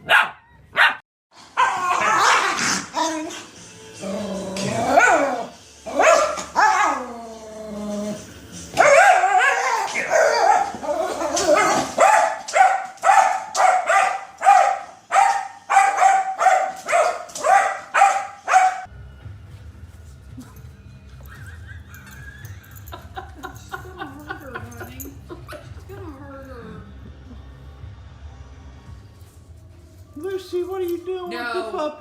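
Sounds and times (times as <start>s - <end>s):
dog barking: 0.0s - 1.0s, 1.6s - 2.9s, 5.0s - 7.1s, 8.8s - 18.9s
dog howling: 1.6s - 3.4s, 8.8s - 12.0s.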